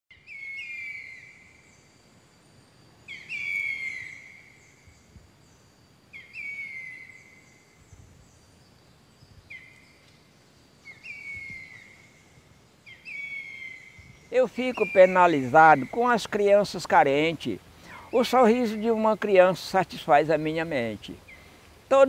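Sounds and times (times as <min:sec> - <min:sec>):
bird call with descending whistle: 0:00.1 - 0:01.7, 0:03.1 - 0:05.1, 0:10.9 - 0:12.2, 0:12.9 - 0:16.2.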